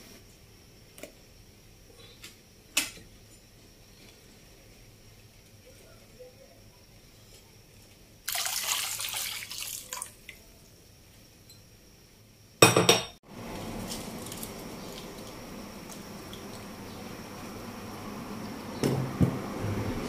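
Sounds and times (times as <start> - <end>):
broth splashing into water: 8.3 - 10.4.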